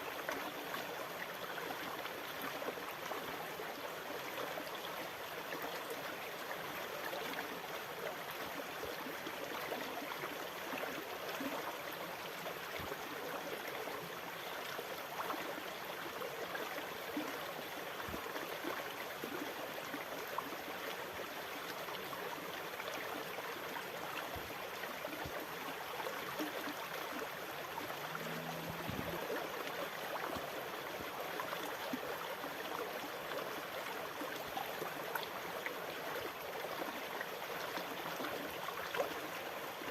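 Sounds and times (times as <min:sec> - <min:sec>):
water splashing and trickling: 0:24.0 - 0:39.9.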